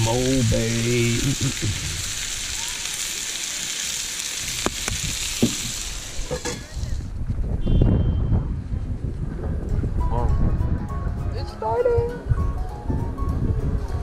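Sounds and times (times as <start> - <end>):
food sizzling in a skillet: 0.0 - 7.0
wind rumbling on microphone: 4.4 - 14.0.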